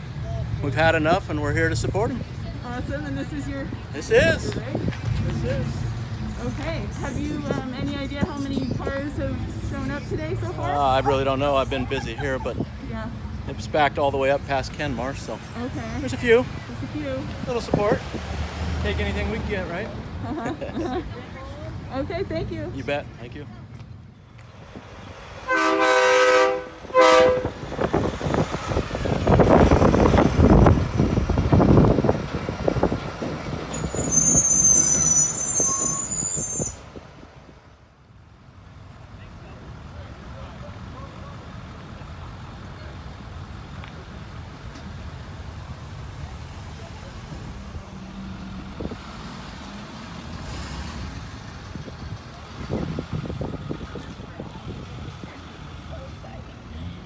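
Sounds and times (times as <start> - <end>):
vehicle engine passing: 0.0 - 37.8, 38.6 - 57.0
vehicle air horn blasts: 25.5 - 27.7.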